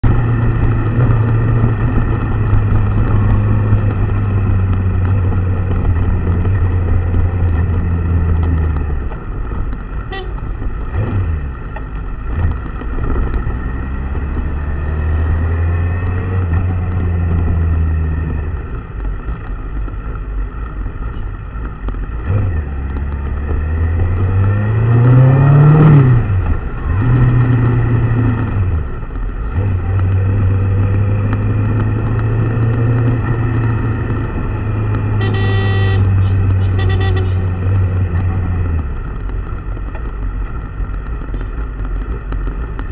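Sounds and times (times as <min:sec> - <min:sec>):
vehicle engine revving: 0:00.0 - 0:19.7, 0:20.7 - 0:42.9.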